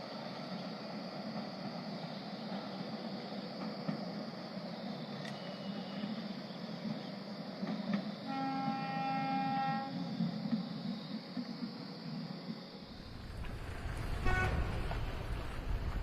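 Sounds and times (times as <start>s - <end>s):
toy train horn: 8.3s - 10.0s, 14.2s - 14.6s.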